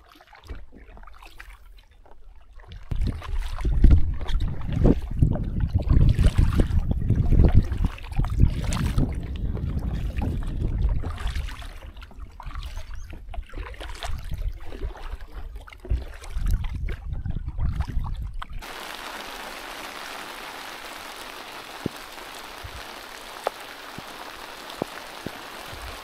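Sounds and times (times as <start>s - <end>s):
water splashing against hull: 0.0s - 26.0s
paddle strokes: 18.6s - 26.0s.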